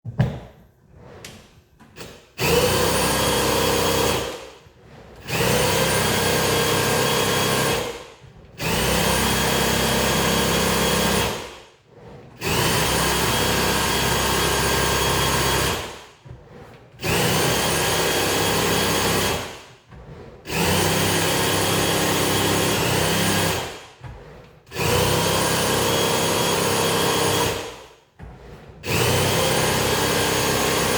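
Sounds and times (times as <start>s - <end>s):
power tool motor bursts: 24.7s - 27.8s, 28.8s - 30.9s.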